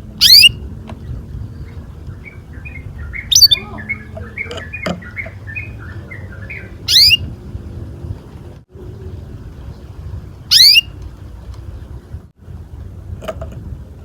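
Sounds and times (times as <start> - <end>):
low background rumble: 0.0 - 14.0
canary singing: 0.1 - 7.4, 10.5 - 10.9.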